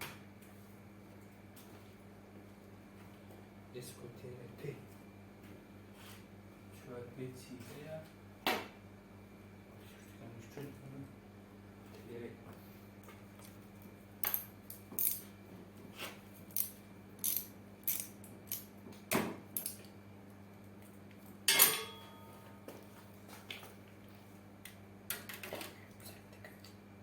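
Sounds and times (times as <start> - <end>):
metal parts and tools clinking: 14.2 - 15.3, 16.5 - 18.6.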